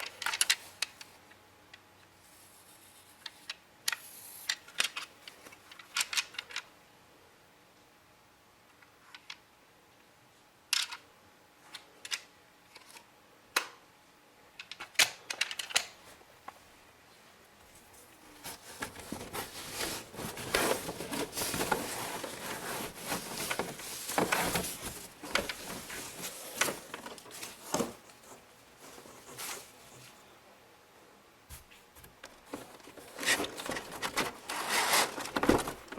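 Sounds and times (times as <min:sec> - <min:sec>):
plastic parts clicking: 0:00.0 - 0:01.1, 0:14.6 - 0:16.0
rustling and scraping: 0:17.2 - 0:30.3, 0:31.5 - 0:35.9.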